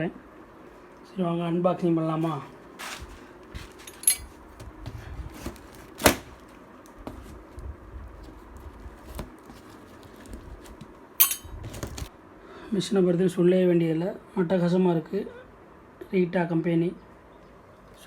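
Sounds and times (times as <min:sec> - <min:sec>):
cardboard tearing and rustling: 0:02.7 - 0:07.6, 0:08.2 - 0:11.0, 0:11.6 - 0:12.1.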